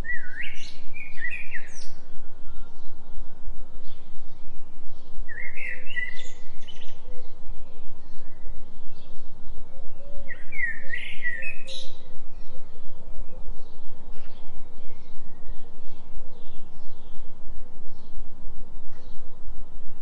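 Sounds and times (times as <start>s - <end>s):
bird chirping: 0.0s - 19.5s
low pulsing tone: 0.0s - 20.0s.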